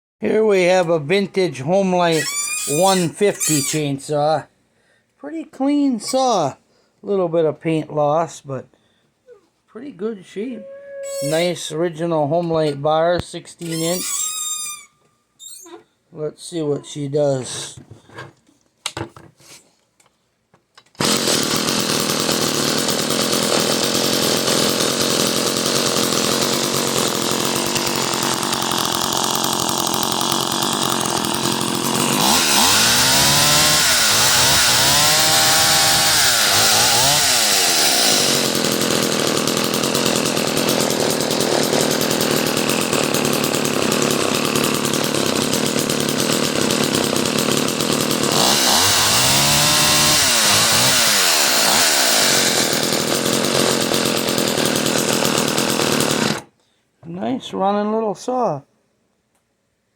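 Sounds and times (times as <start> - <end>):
chainsaw engine idling and revving: 2.1 - 3.9, 21.0 - 56.5.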